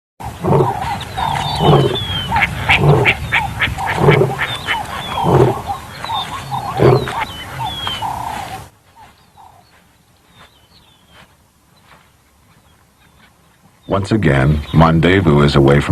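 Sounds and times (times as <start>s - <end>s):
deep animal call: 0.2s - 9.8s.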